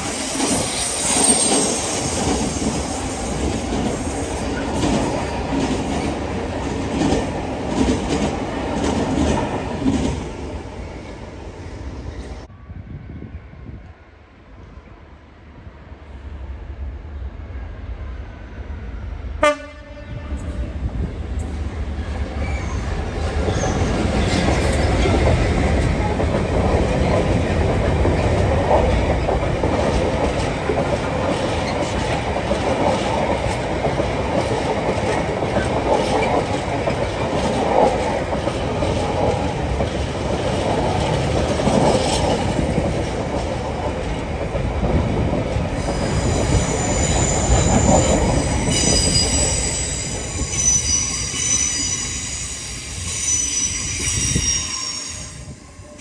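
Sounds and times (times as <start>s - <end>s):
high-pitched wheel squeal: 45.8s - 55.5s.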